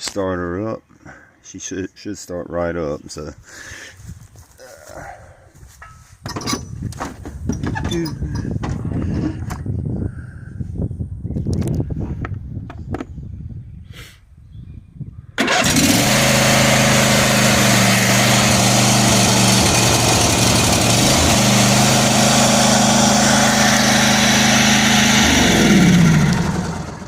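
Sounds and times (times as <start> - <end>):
lawn tractor engine starting: 15.4 - 27.0.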